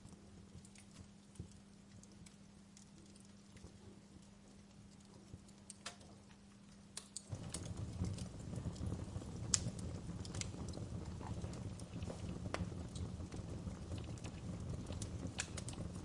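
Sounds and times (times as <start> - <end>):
wood fire crackling and popping: 0.0 - 16.0
low rush of burning: 7.2 - 16.0.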